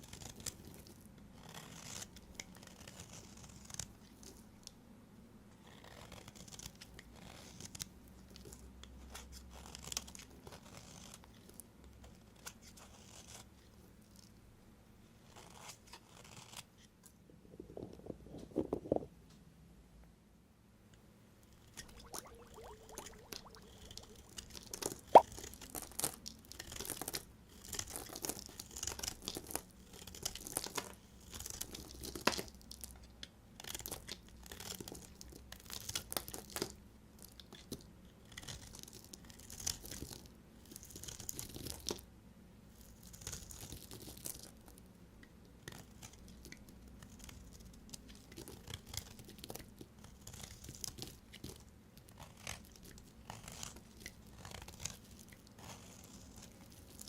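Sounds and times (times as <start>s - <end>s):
knife cutting through dry soap: 0.1s - 3.9s, 15.2s - 16.7s.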